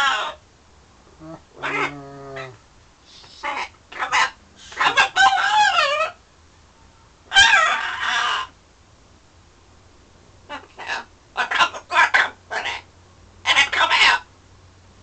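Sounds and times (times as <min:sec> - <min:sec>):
macaw calling: 0:03.2 - 0:06.2.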